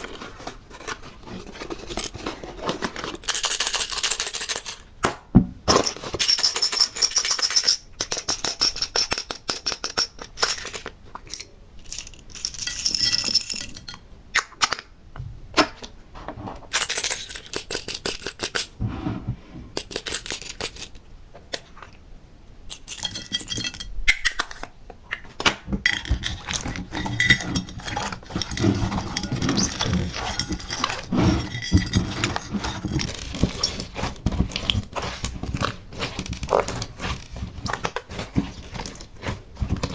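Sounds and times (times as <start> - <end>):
small pieces clinking and rattling: 0.1 - 4.8, 5.7 - 14.0, 16.7 - 18.7, 22.7 - 24.7, 25.9 - 39.9.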